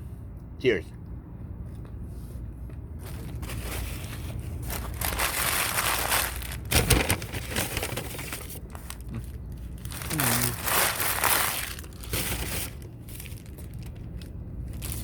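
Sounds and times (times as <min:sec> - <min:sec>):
paper wrapper crinkling: 0:03.0 - 0:15.0.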